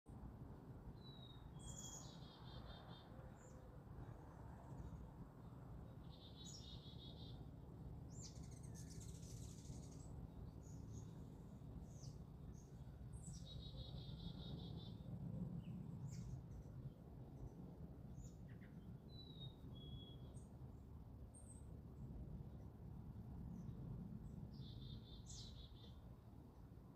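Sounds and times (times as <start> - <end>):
low background noise: 0.1 - 26.9
birds singing pulsed phrase: 11.9 - 15.1.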